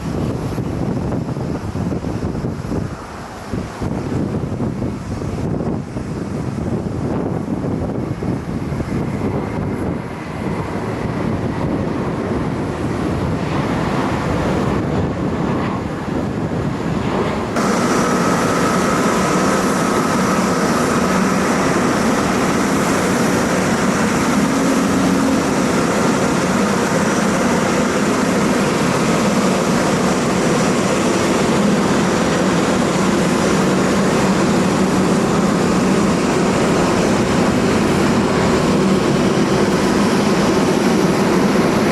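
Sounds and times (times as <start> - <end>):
jet engines roaring: 0.0 - 41.9.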